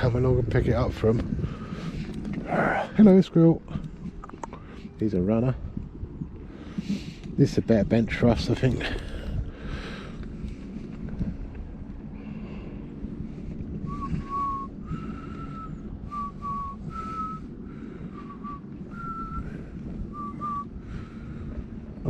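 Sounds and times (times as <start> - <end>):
mobility scooter humming: 5.6 - 22.0
person whistling a tune: 13.9 - 17.5, 18.2 - 20.7.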